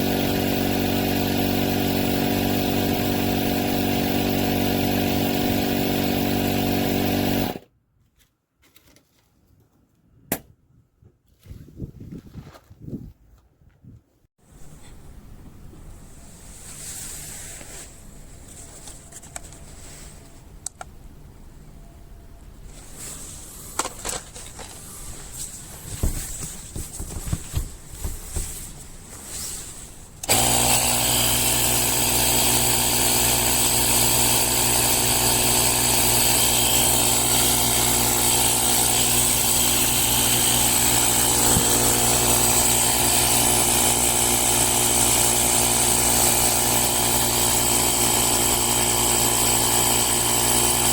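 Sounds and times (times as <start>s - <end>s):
air compressor humming: 0.0s - 7.6s, 30.2s - 50.9s.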